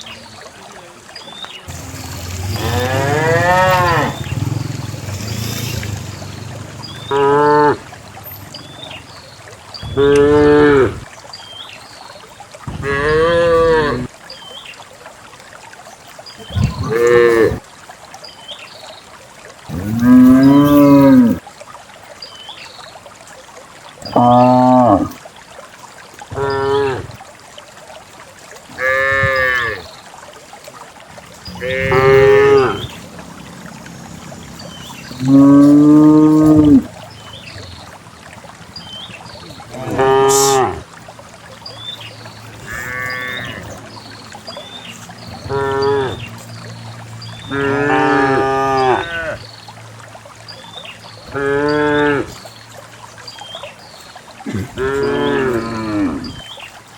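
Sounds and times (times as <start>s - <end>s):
cows mooing: 1.7s - 9.0s, 9.8s - 11.0s, 12.8s - 14.1s, 16.6s - 17.6s, 19.7s - 21.4s, 28.7s - 29.8s, 31.4s - 37.0s, 39.6s - 40.9s, 42.5s - 43.9s, 45.4s - 46.2s, 47.4s - 49.4s, 51.3s - 52.3s, 54.5s - 56.3s.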